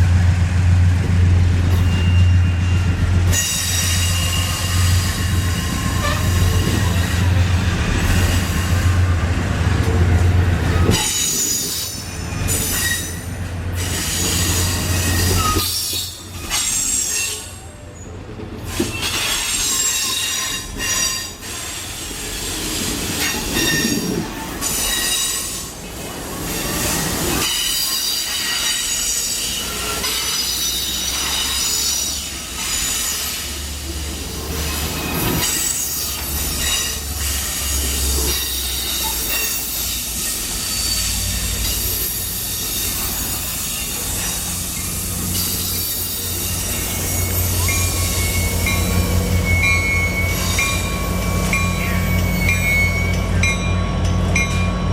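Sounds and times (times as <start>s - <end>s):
train wheels squealing: 1.6s - 9.3s, 10.7s - 54.9s
locomotive low rumble: 4.4s - 12.6s.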